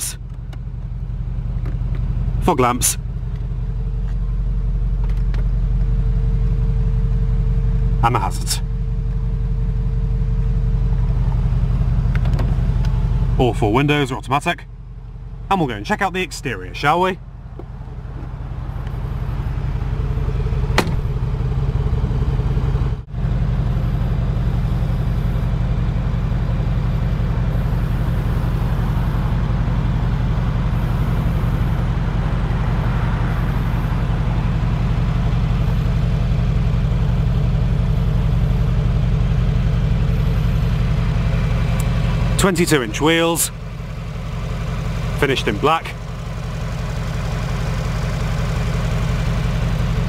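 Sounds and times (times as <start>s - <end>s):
car engine idling: 0.0s - 50.0s.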